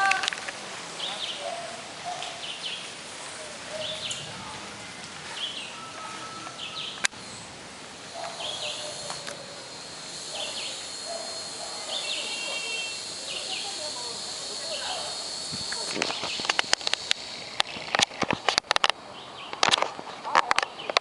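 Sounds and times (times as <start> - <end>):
steady background hiss: 0.0 - 21.0
bird chirping: 1.0 - 4.4, 5.3 - 18.0.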